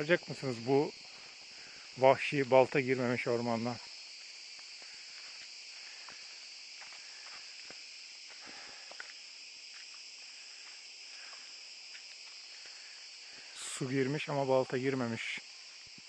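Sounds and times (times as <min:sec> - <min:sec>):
insects buzzing: 0:00.0 - 0:16.0
footsteps on a trail: 0:00.9 - 0:02.6, 0:03.8 - 0:13.8.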